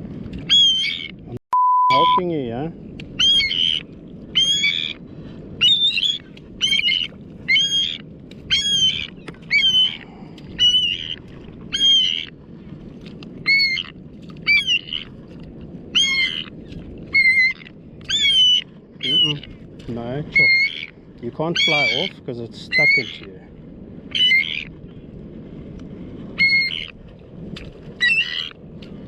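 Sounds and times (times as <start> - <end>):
bird squawking: 0.5 - 1.1, 3.2 - 3.8, 4.4 - 5.0, 5.6 - 10.0, 10.6 - 12.3, 13.5 - 15.1, 15.9 - 16.5, 17.1 - 19.5, 20.3 - 23.3, 24.1 - 24.7, 26.4 - 26.9, 28.0 - 28.5.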